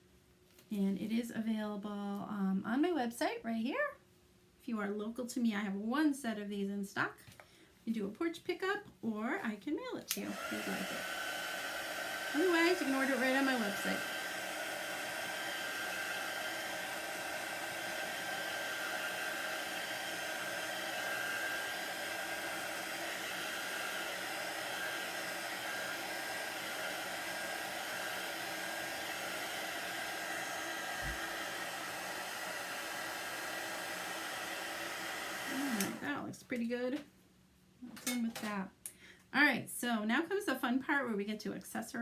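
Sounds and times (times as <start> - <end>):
hot-air dryer blowing: 10.1 - 36.3.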